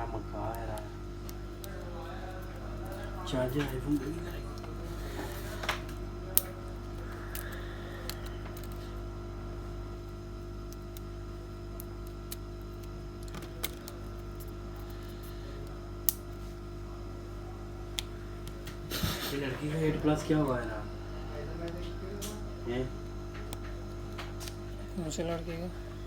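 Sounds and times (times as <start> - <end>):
electrical hum: 0.0 - 26.0
small parts clicking: 5.8 - 8.8, 11.8 - 15.3.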